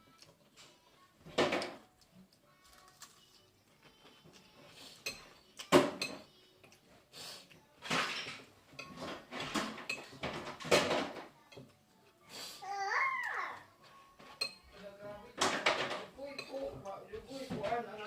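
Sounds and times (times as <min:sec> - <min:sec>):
dishes and cutlery clattering: 0:00.3 - 0:01.9, 0:03.8 - 0:06.8, 0:07.8 - 0:11.8, 0:13.8 - 0:18.0.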